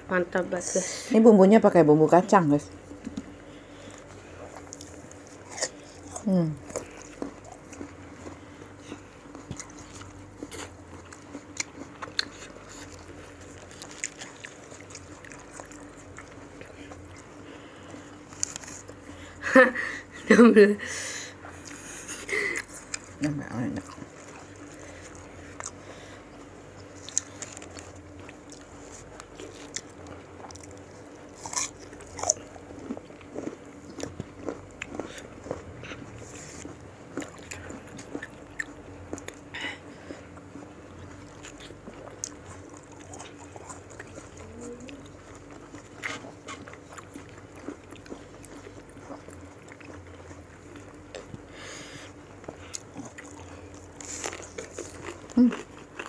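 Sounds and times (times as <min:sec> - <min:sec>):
faint steady hum: 0:00.0 - 0:56.0
wet chewing: 0:02.9 - 0:19.2, 0:21.4 - 0:56.0
crisp bites and crunching: 0:09.4 - 0:16.4.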